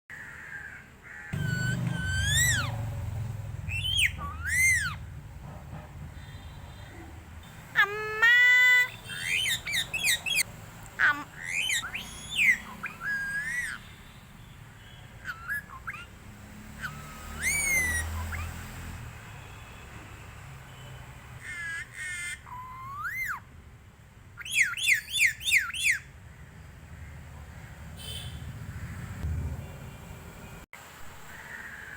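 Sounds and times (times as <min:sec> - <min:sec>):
parrot giving crow-like calls: 0:00.1 - 0:02.9, 0:11.0 - 0:13.8, 0:16.8 - 0:18.6
parrot cawing like a crow: 0:00.1 - 0:03.0, 0:03.7 - 0:05.0, 0:07.7 - 0:13.8, 0:15.2 - 0:18.8, 0:21.4 - 0:23.4
parrot shrill screeches: 0:01.3 - 0:02.8, 0:03.7 - 0:05.0, 0:07.8 - 0:13.9, 0:15.2 - 0:16.1, 0:16.8 - 0:18.6, 0:21.4 - 0:23.4, 0:24.4 - 0:26.0.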